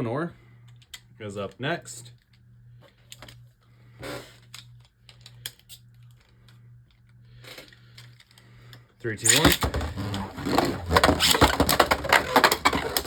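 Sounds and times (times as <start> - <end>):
steady low hum: 0.0 - 13.0
plastic toy tops clicking and rattling: 9.3 - 13.0.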